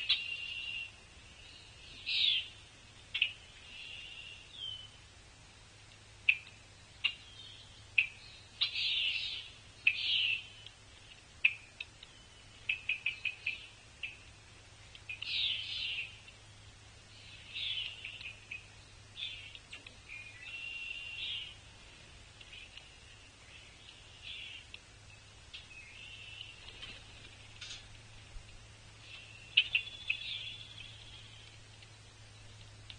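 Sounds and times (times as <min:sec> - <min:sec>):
songbirds chirping and singing: 0:00.0 - 0:32.9.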